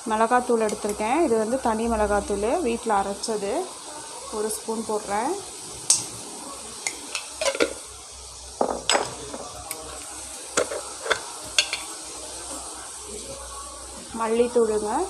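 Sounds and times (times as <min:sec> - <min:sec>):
masala sizzling in oil: 0:00.0 - 0:15.0.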